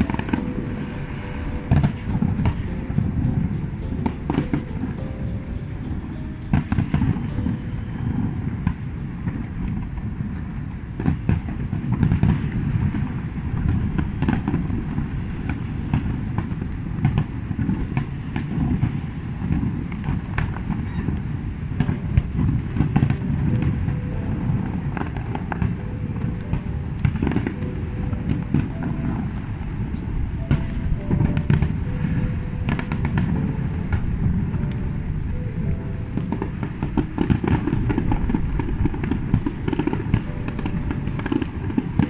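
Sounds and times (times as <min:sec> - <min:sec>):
fireworks sharp cracks: 0:00.0 - 0:08.8.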